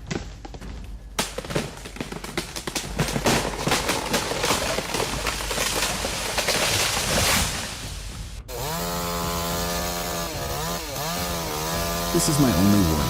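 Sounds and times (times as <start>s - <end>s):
chainsaw engine running: 8.5s - 13.0s.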